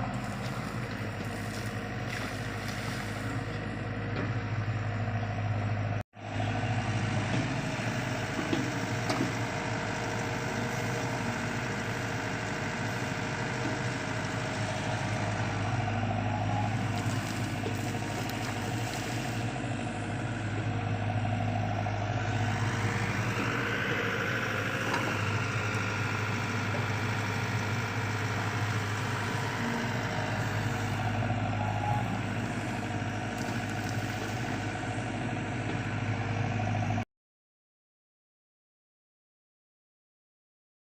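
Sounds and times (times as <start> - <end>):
excavator diesel engine running: 0.0 - 37.0
whine: 28.4 - 34.6.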